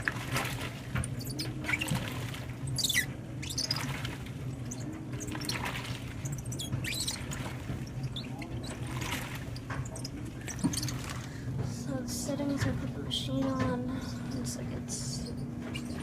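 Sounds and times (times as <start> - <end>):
washer low hum: 0.0 - 16.0
water sloshing: 0.0 - 16.0
rubber shoes squeaking: 2.7 - 4.0, 4.6 - 11.2, 15.3 - 16.0.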